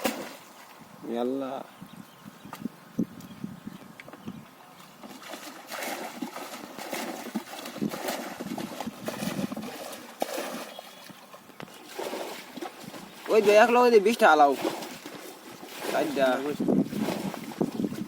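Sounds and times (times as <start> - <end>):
water splashing and sloshing: 0.0 - 0.9, 4.7 - 18.0.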